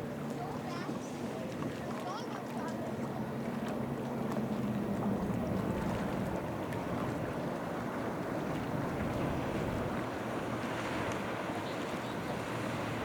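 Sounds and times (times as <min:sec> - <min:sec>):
motorboat engine humming: 0:00.0 - 0:13.0
water noise: 0:00.0 - 0:13.0
wind: 0:00.0 - 0:13.0.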